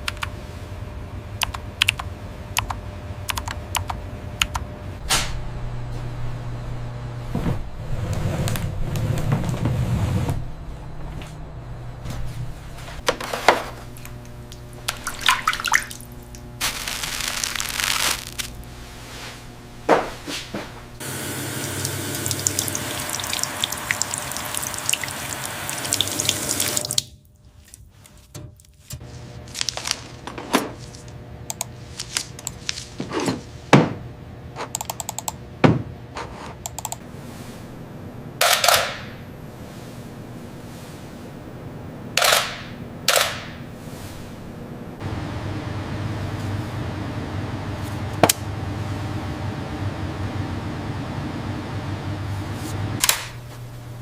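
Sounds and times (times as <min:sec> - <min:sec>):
water running from a tap: 0:14.9 - 0:16.3, 0:21.0 - 0:27.1.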